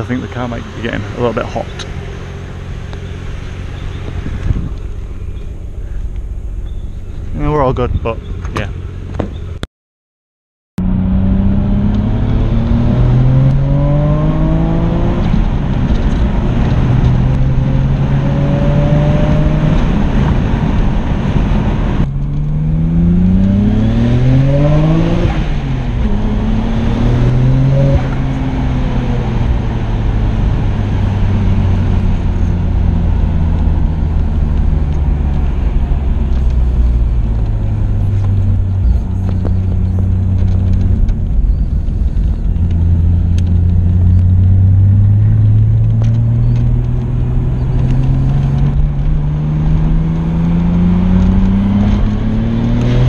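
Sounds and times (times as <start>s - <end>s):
car engine revving through gears: 10.8s - 53.0s.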